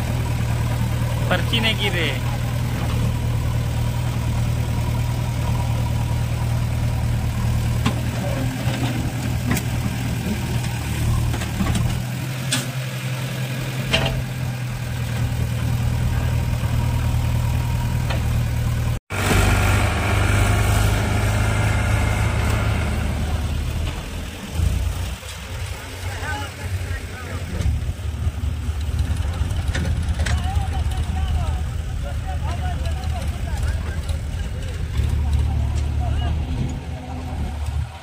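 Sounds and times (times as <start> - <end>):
diesel tractor engine idling: 0.0 - 38.0
light metal clanks: 13.9 - 14.4.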